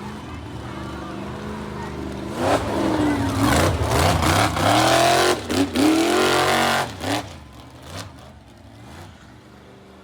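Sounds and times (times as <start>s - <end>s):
monster truck engine revving: 2.3s - 9.2s.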